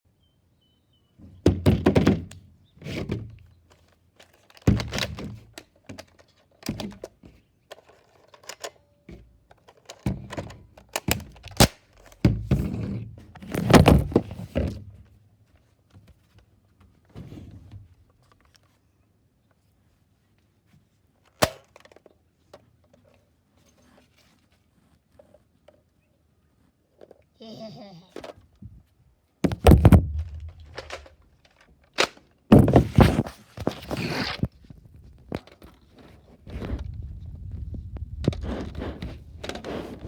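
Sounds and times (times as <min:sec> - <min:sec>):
hollow thunks and knocks: 0:29.4 - 0:31.0.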